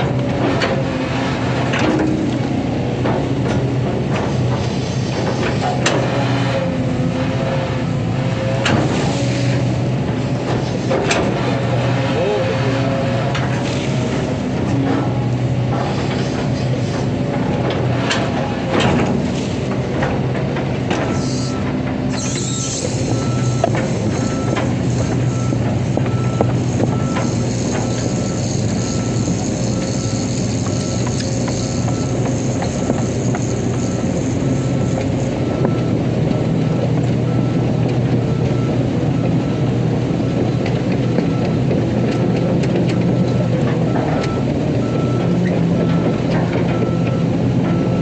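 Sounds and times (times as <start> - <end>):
excavator diesel engine running: 0.0 - 48.0
high warning beeps: 21.1 - 24.6
travel alarm beeping: 23.1 - 24.6.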